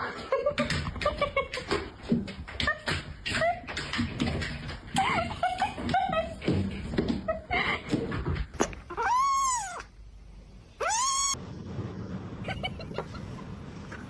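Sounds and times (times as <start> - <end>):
cat meowing: 8.8 - 9.9, 10.8 - 11.4.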